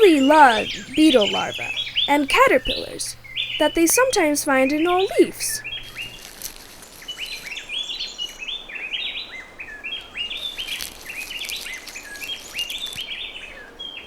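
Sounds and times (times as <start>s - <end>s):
birds chirping: 0.0s - 9.2s
faint forest hiss: 0.0s - 14.0s.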